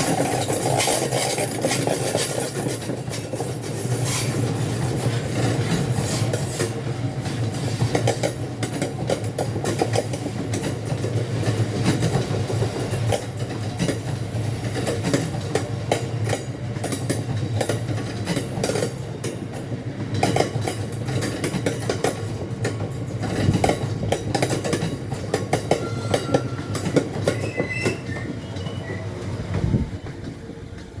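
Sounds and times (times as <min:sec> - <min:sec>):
train rumble: 0:00.0 - 0:31.0
train wheels clickety-clack: 0:00.0 - 0:31.0
faint wheel squeals: 0:25.7 - 0:29.4.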